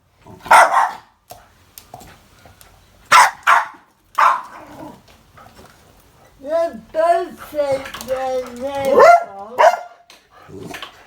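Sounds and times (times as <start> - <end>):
dog barking excitedly: 0.4 - 1.2, 3.1 - 4.8, 7.2 - 10.8.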